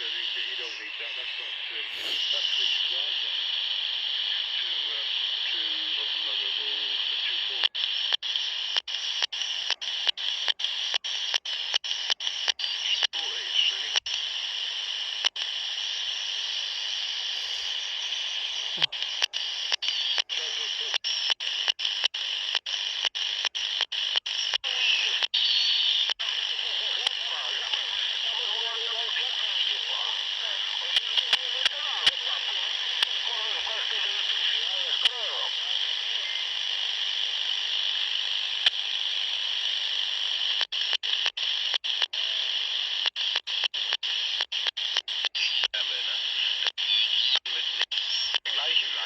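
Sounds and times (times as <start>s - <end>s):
distorted radio voice: 0.0s - 3.6s, 4.2s - 8.0s, 12.8s - 14.2s, 17.2s - 21.6s, 24.6s - 36.5s, 43.8s - 49.0s
radio static hiss: 0.0s - 49.0s
walkie-talkie click: 7.6s - 13.2s, 18.7s - 28.2s, 30.2s - 36.4s, 38.6s - 38.8s, 40.5s - 48.6s.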